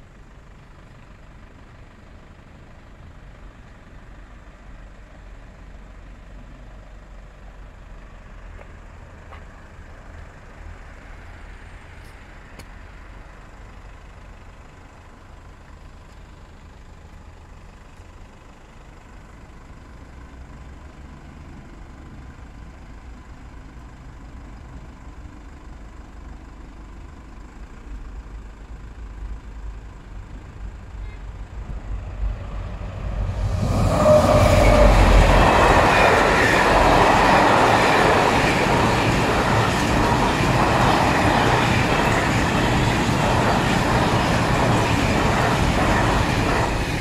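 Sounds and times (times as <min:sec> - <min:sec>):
freight train passing: 0:29.0 - 0:47.0.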